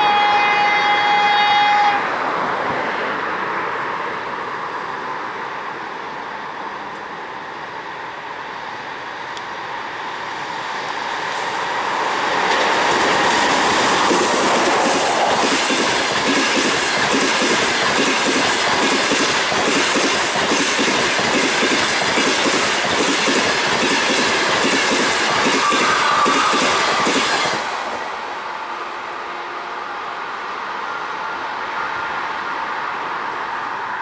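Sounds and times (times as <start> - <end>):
passenger train passing: 0.0 - 34.0
wheels clacking over rail joints: 11.6 - 28.2.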